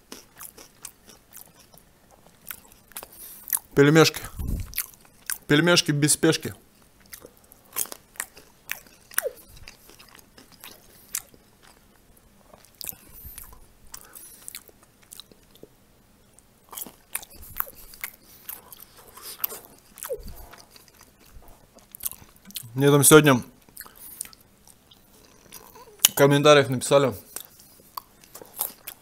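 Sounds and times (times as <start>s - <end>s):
crunchy chewing: 0.0s - 5.5s, 6.7s - 22.7s, 23.6s - 26.2s, 27.2s - 29.0s
wet mouth smacking: 18.8s - 20.7s.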